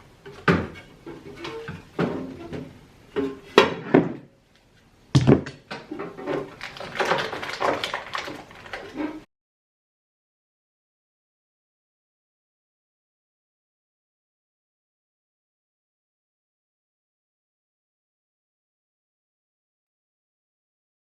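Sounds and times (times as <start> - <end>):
food containers knocking and clattering: 0.3 - 4.3, 5.2 - 9.2.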